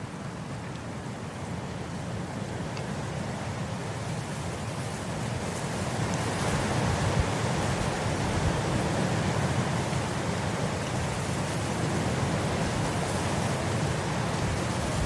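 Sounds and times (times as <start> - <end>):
wind blowing across grass: 0.0 - 15.0.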